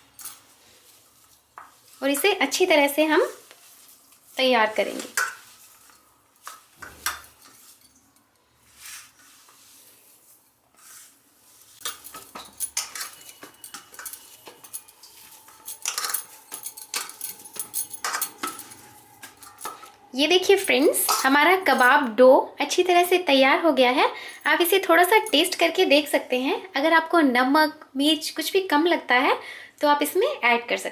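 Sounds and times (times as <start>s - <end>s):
spoon clinking against bowl: 11.8s - 20.0s.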